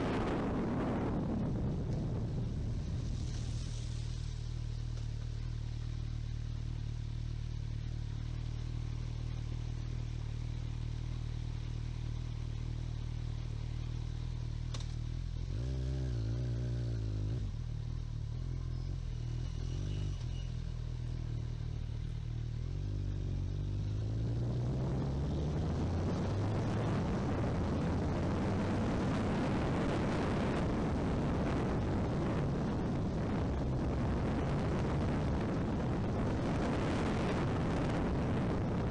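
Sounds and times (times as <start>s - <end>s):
rushing wind: 0.0s - 6.2s, 15.5s - 38.9s
motorcycle engine: 0.0s - 38.9s
road noise: 0.0s - 38.9s.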